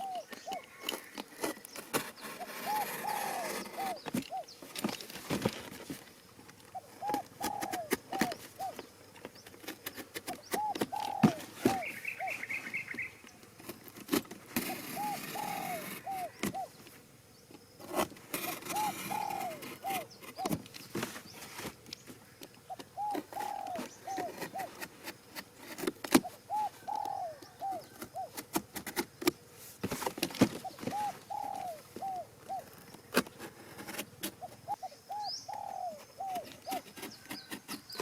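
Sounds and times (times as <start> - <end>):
pigeon cooing: 0.0 - 1.1, 2.4 - 4.5, 6.7 - 8.8, 10.3 - 13.1, 14.6 - 16.8, 18.4 - 20.6, 22.7 - 24.9, 26.1 - 28.4, 30.5 - 32.8, 34.2 - 38.0.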